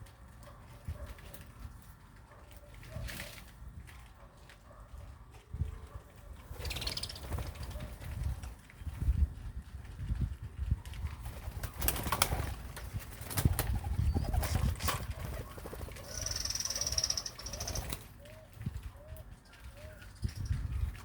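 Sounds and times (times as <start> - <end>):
dove-like cooing: 13.6 - 20.2
high trilling bird call: 16.0 - 18.0.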